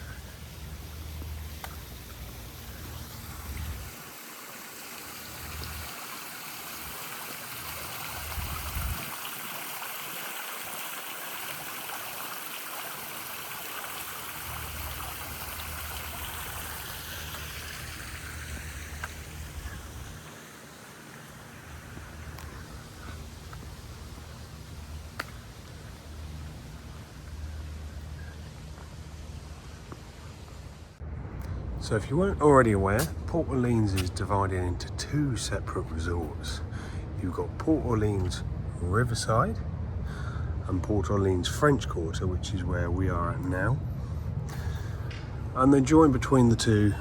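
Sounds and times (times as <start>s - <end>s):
wind rumbling on microphone: 0.0s - 4.1s, 7.6s - 9.8s, 14.9s - 20.4s
running water splashing: 0.0s - 27.7s.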